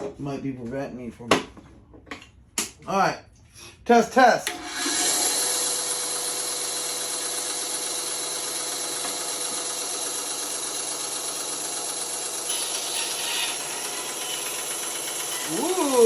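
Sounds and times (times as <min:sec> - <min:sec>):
band saw running: 0:04.5 - 0:16.0.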